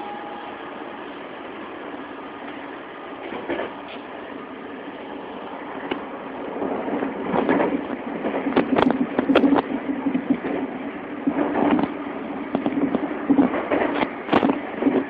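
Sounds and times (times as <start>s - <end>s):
electric train running from inside: 0.0s - 15.0s
wheels clacking on track: 2.4s - 4.3s, 5.0s - 15.0s.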